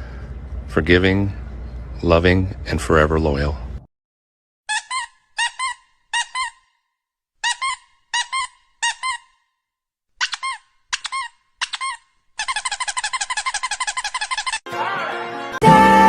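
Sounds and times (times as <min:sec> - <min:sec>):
squeaky dog toy squeaking: 0:04.7 - 0:06.8, 0:07.4 - 0:09.5, 0:10.2 - 0:14.7.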